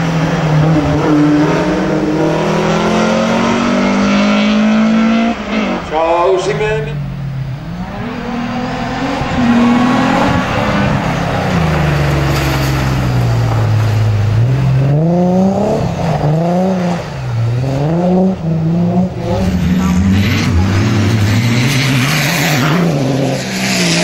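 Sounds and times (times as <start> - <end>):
rally car engine at full throttle: 0.0 - 24.0
tyres on gravel: 9.6 - 15.1.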